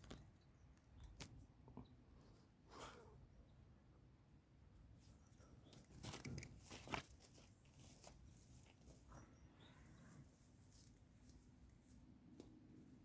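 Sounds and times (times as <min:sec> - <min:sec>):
faint rustles and clicks: 0:05.0 - 0:09.4.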